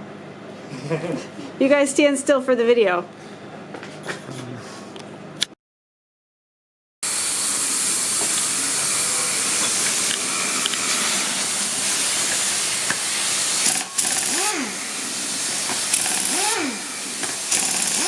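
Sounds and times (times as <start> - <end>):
loud rushing hiss: 7.0 - 18.0.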